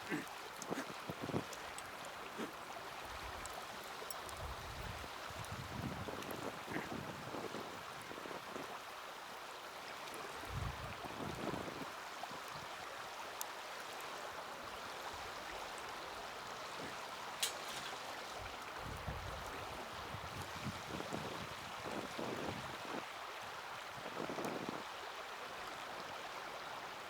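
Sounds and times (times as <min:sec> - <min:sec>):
wood fire hissing and crackling: 0:00.0 - 0:08.8, 0:09.4 - 0:23.1
wind rumble on microphone: 0:04.3 - 0:08.8, 0:10.4 - 0:11.9, 0:18.4 - 0:24.9.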